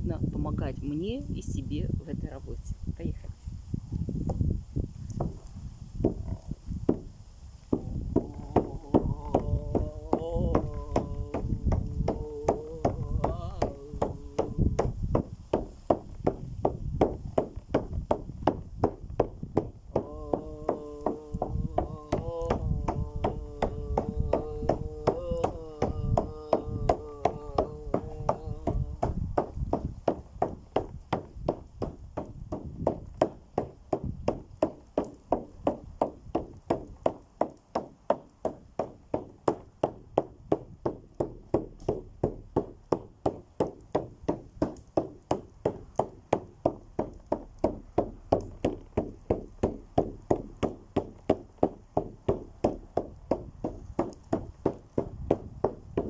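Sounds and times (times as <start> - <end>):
hand-struck drum beating: 7.7 - 56.0
held sung or hummed tone: 7.8 - 15.2, 19.9 - 29.6.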